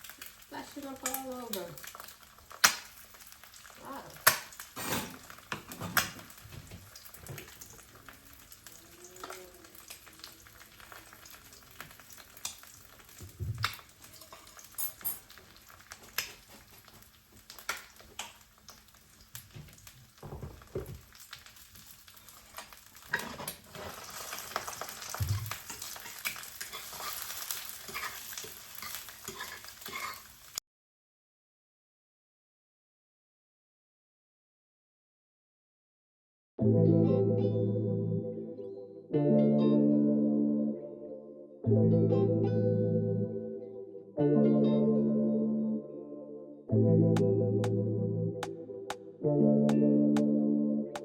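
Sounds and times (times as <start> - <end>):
egg sizzling in a pan: 0.0 - 30.6.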